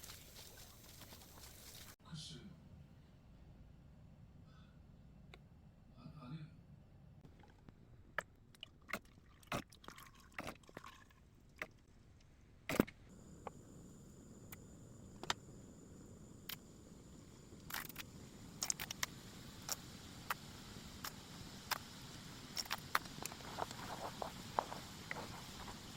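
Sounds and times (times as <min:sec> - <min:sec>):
faint steady hiss: 0:00.0 - 0:03.1, 0:13.0 - 0:25.9.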